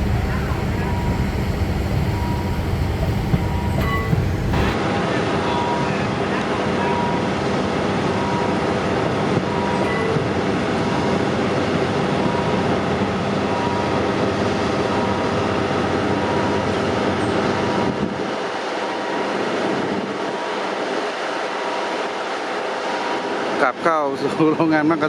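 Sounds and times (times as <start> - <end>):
diesel engine rumble: 0.0 - 4.8
train wheels on rails: 0.0 - 4.9, 7.0 - 25.0.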